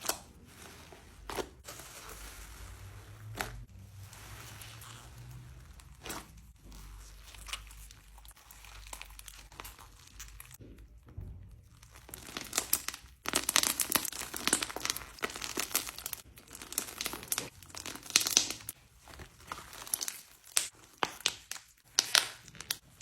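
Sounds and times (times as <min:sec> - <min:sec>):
slime squishing with wet crackles: 0:00.0 - 0:23.0.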